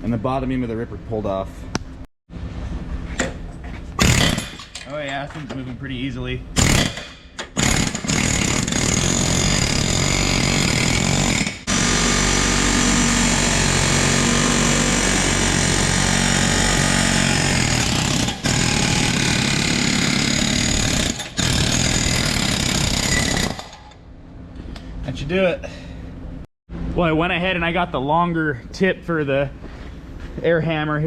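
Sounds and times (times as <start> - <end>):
pneumatic air hammer rattling on steel: 4.0 - 4.9, 6.6 - 11.8.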